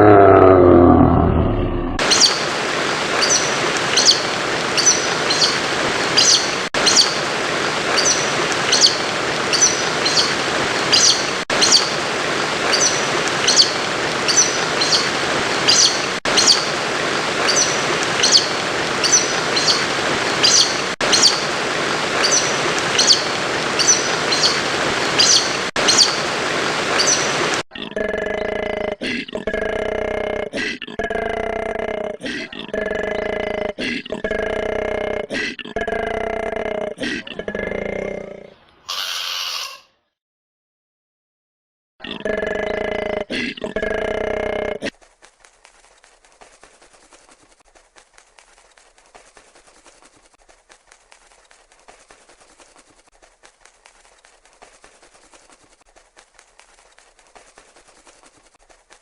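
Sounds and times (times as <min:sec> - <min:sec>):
bird chirping: 0:02.0 - 0:02.4, 0:08.0 - 0:11.9.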